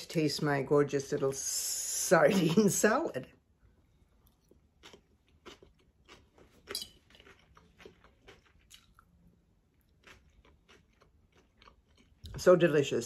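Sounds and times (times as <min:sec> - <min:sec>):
person chewing crisp lettuce: 0:04.0 - 0:12.4.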